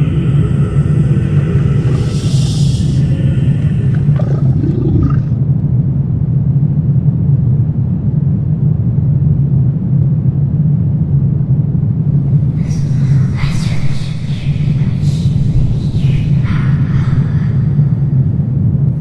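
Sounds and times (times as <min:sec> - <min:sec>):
low rumbling drone: 0:00.0 - 0:05.6.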